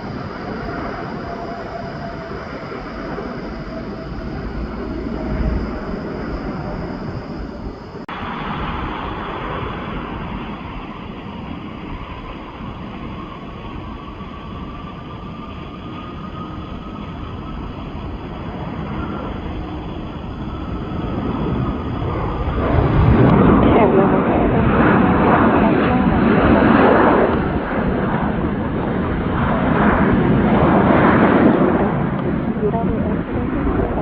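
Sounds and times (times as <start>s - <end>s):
jet engines roaring: 0.0s - 34.0s.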